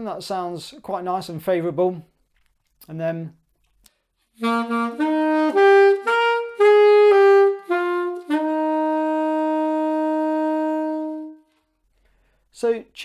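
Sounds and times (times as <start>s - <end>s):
saxophone melody: 4.4s - 11.6s.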